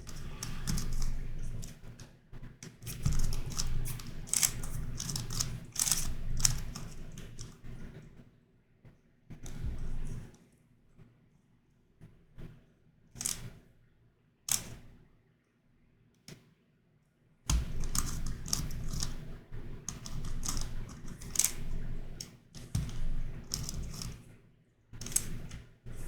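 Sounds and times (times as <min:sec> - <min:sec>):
plastic puzzle clicking: 0:03.0 - 0:06.7, 0:19.9 - 0:21.6.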